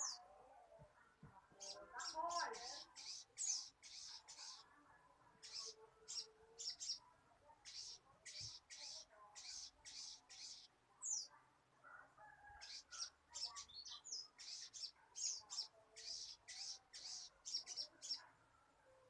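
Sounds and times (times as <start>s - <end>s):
bird raspy chirps: 1.6s - 4.6s, 7.6s - 11.3s, 12.6s - 18.2s.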